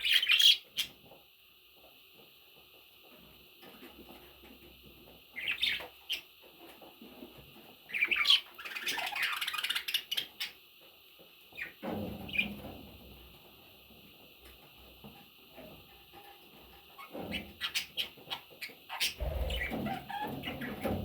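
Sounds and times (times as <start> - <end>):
budgerigars squawking and chirping: 18.9 - 21.0.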